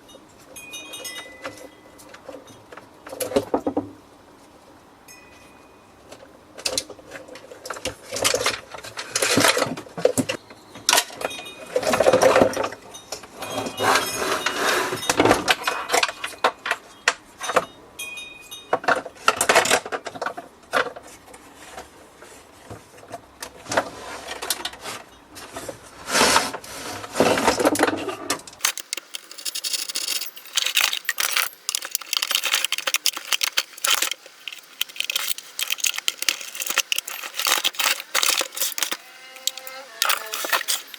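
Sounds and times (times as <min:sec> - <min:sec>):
coffee machine parts clattering: 0:28.6 - 0:40.9
light clicking and rustling: 0:28.6 - 0:40.9.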